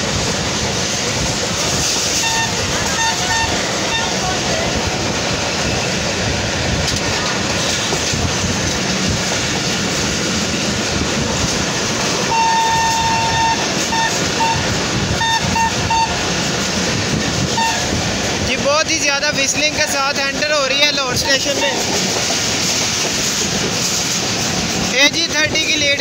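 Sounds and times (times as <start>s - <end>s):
train rumbling: 0.0s - 26.0s
wind: 0.0s - 26.0s
locomotive horn blasts and toots: 2.2s - 4.2s, 12.3s - 16.2s, 17.5s - 18.0s.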